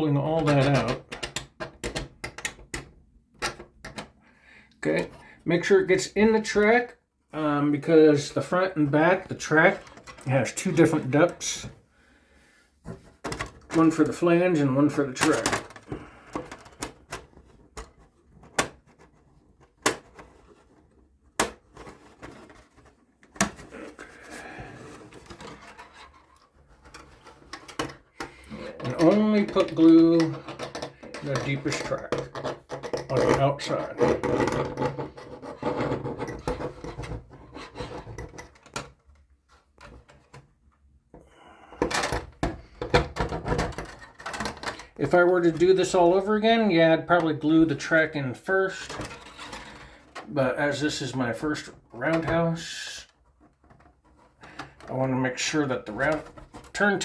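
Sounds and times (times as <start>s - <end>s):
hands handling plastic model track: 12.8s - 40.8s, 41.8s - 57.0s.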